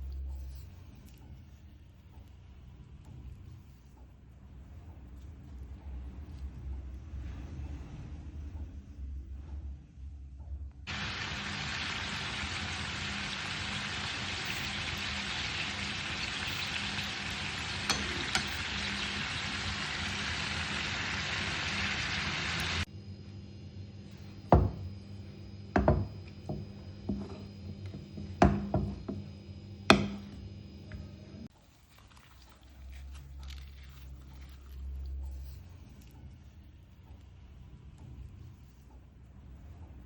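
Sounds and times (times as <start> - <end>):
food sizzling in a pan: 10.9 - 22.9.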